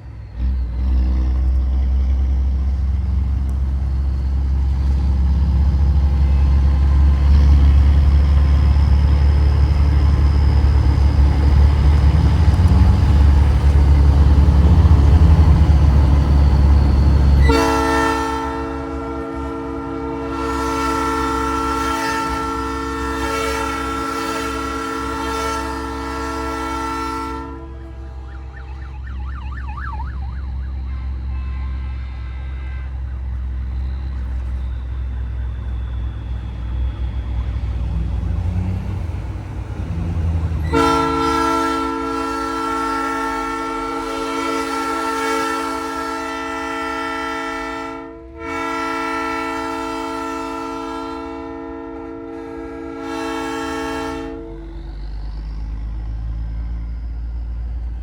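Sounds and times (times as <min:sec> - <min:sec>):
truck engine running: 0:00.0 - 0:17.8, 0:27.6 - 0:41.6
train horn chord: 0:16.8 - 0:29.0, 0:30.8 - 0:33.6, 0:40.6 - 0:54.9.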